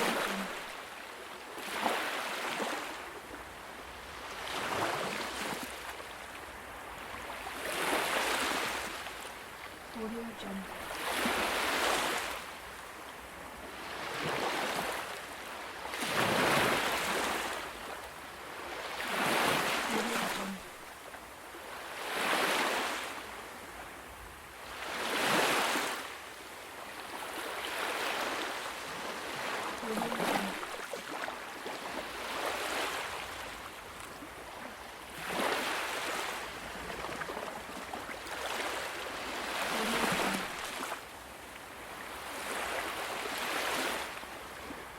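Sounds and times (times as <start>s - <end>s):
ocean waves washing onto shore: 0.0s - 44.9s.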